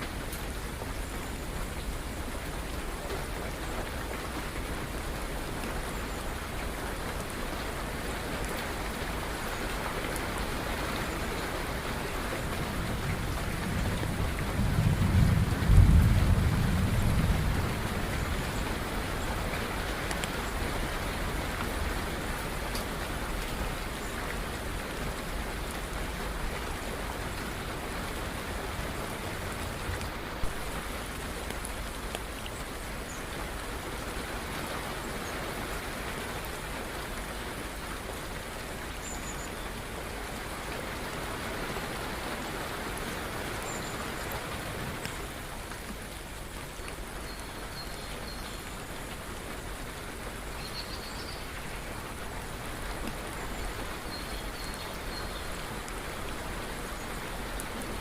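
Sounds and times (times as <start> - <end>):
steady rainfall: 0.0 - 58.0
thunder rumble: 12.8 - 18.5.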